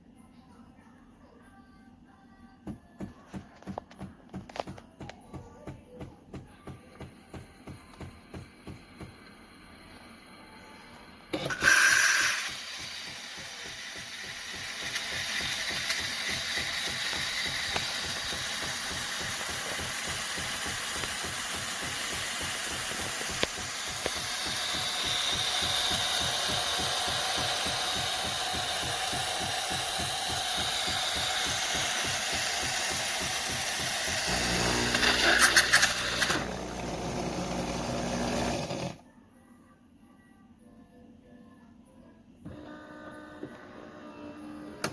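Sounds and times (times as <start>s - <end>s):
espresso machine running: 11.3s - 39.0s.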